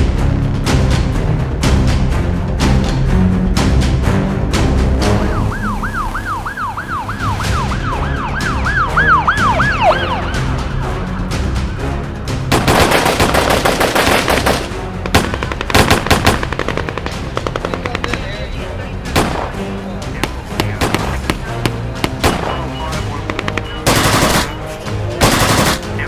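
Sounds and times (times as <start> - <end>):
police siren yelping: 5.2 - 10.8
gunfire: 12.5 - 18.4, 19.1 - 19.6, 20.2 - 24.6, 25.2 - 25.9.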